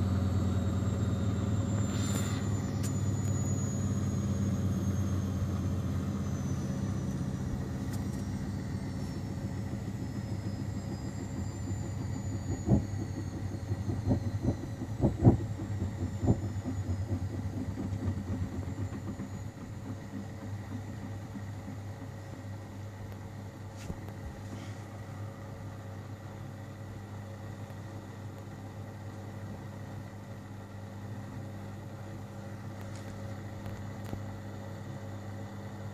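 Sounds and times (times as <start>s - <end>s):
washing machine spinning down: 0.0s - 35.9s.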